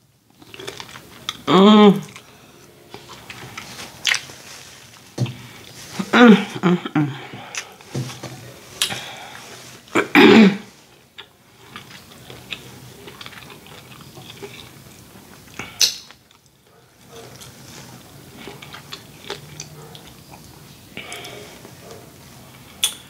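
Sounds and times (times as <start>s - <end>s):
chewing and lip-smacking: 11.2s - 17.6s, 18.3s - 23.0s.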